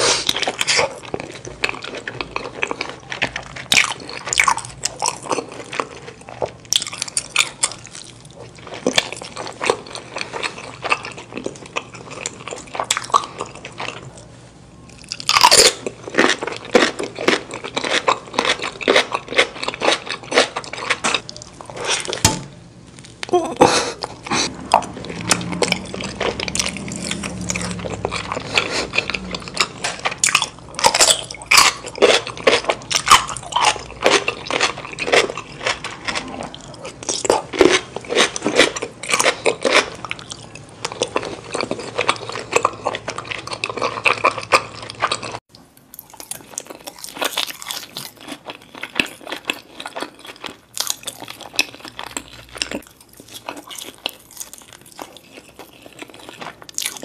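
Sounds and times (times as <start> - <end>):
crunching and chewing crispy food: 0.0 - 57.0.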